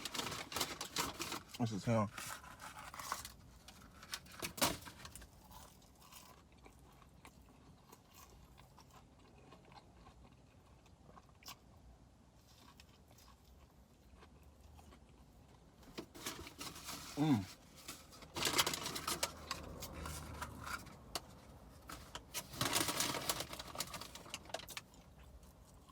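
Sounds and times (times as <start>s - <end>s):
person chewing food: 5.1s - 16.0s, 24.2s - 25.9s.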